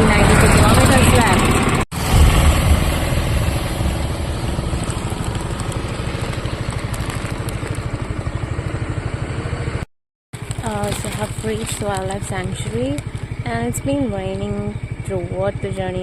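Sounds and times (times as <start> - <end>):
motor scooter engine running: 0.0 - 16.0.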